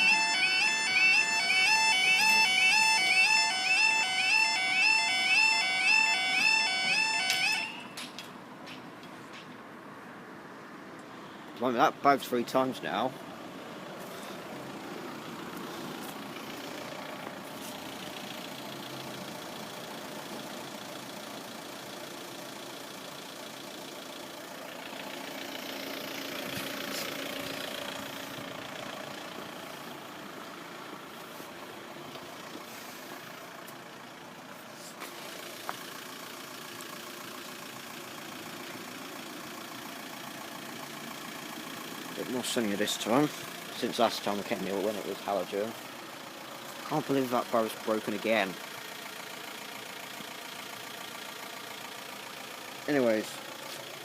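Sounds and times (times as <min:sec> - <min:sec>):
vehicle engines idling: 0:00.0 - 0:54.0.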